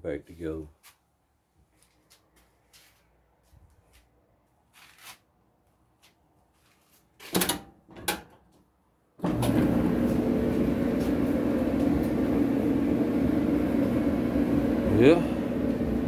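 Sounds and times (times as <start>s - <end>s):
clothes dryer humming: 9.2s - 16.0s.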